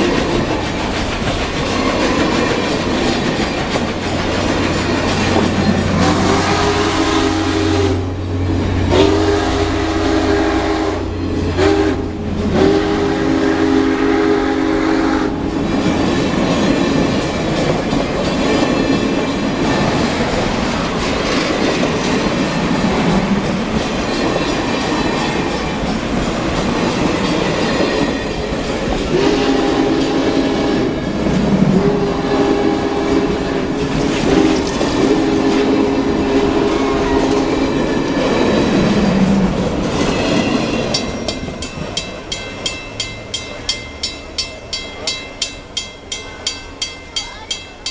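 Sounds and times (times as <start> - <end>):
wheels clacking on rail joints: 0.0 - 14.0, 15.2 - 47.9
train rolling past: 0.0 - 47.9
steam train chime whistle: 4.9 - 15.5, 27.4 - 31.1, 31.8 - 38.6.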